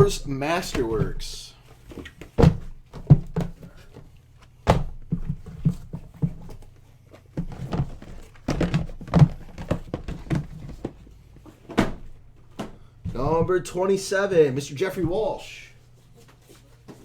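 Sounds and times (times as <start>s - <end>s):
cardboard boxes knocking on table: 1.9s - 11.0s.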